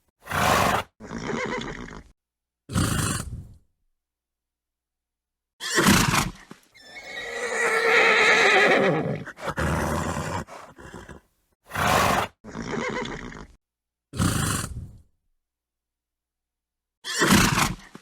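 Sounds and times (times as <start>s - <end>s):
horse snorting: 2.7s - 3.6s, 5.8s - 13.6s, 14.2s - 15.0s
horse neighing: 6.8s - 11.2s.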